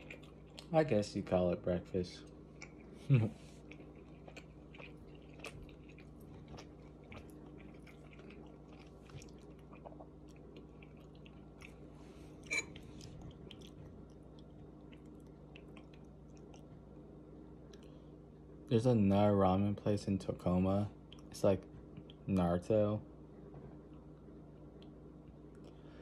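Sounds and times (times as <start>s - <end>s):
person chewing noodles: 0.0s - 0.7s, 2.3s - 16.9s, 17.7s - 18.0s
faint steady hum: 0.0s - 26.0s.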